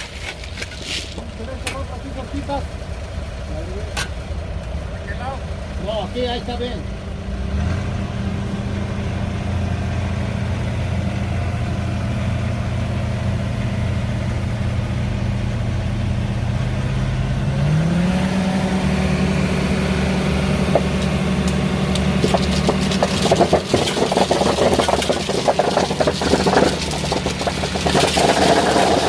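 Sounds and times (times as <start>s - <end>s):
engine running and revving: 7.3s - 29.0s.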